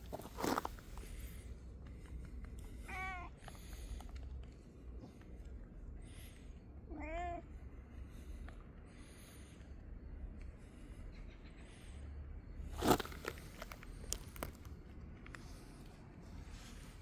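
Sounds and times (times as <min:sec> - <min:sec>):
cat meowing: 0:06.9 - 0:07.4.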